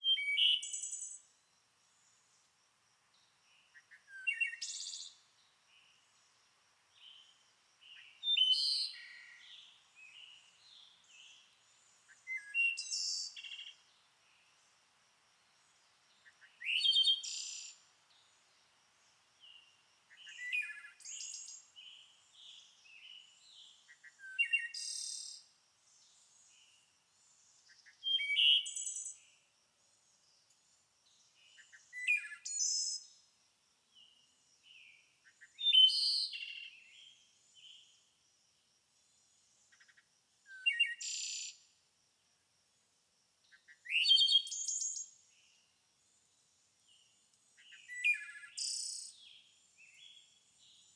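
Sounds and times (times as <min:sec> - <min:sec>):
songbird singing: 0:00.0 - 0:14.8, 0:15.4 - 0:38.2, 0:39.0 - 0:41.7, 0:43.4 - 0:50.9
soft bird chirps: 0:19.4 - 0:25.2, 0:31.2 - 0:33.2, 0:46.9 - 0:50.9.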